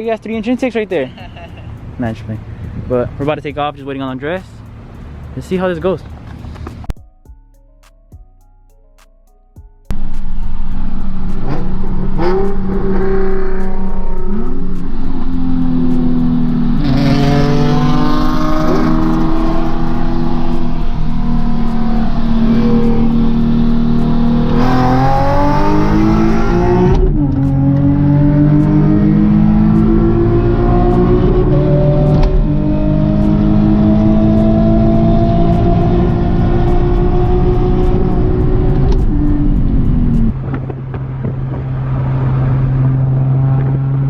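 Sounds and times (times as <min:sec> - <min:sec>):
car engine accelerating: 0:09.9 - 0:44.0.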